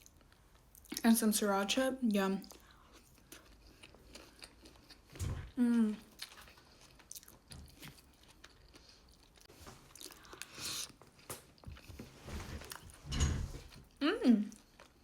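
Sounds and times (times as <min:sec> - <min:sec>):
person chewing food: 0:02.4 - 0:12.0, 0:13.7 - 0:15.0.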